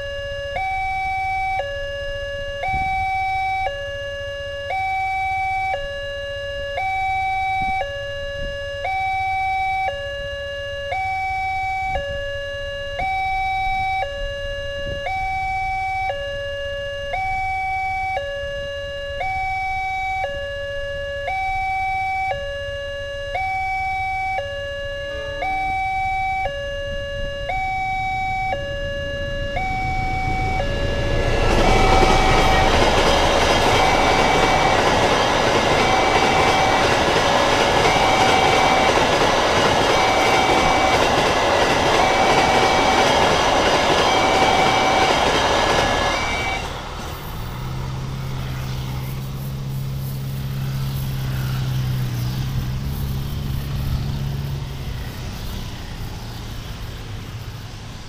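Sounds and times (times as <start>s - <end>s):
road vehicle engines running: 0.0s - 58.0s
level crossing warning chime: 23.3s - 46.7s
train passing at speed: 27.2s - 58.0s.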